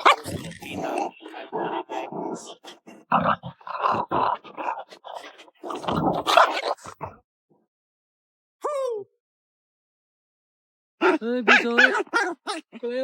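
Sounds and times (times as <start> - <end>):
puppy growling: 0.0 - 7.1, 11.0 - 12.8.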